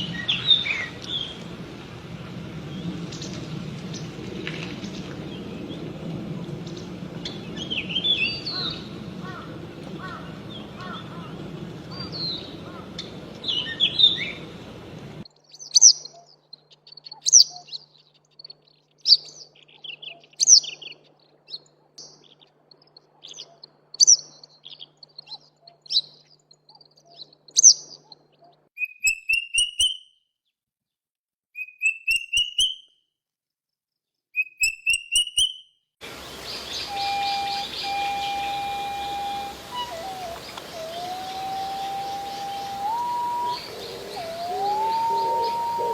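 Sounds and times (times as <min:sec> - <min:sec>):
bird calls: 0:00.0 - 0:01.5, 0:06.6 - 0:29.2, 0:36.0 - 0:45.9
songbird singing: 0:00.0 - 0:30.1, 0:34.4 - 0:45.9
bird rising trills: 0:36.1 - 0:45.9.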